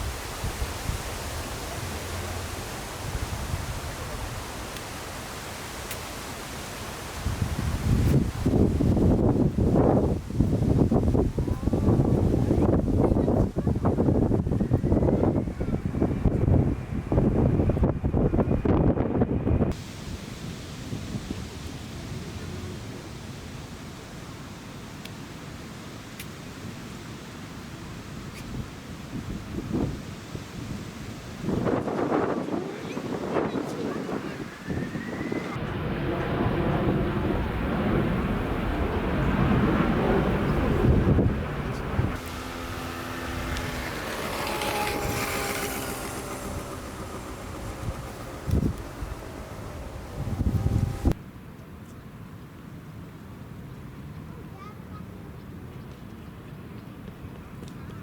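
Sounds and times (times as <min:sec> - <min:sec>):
jet engines whining: 0:00.0 - 0:13.2, 0:31.4 - 0:51.2
wind buffeting microphone: 0:00.0 - 0:24.0, 0:28.1 - 0:51.2.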